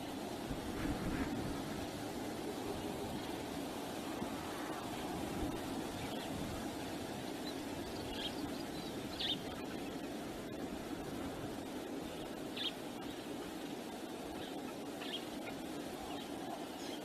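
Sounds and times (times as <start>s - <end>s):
wind noise on microphone: 0.0s - 12.5s.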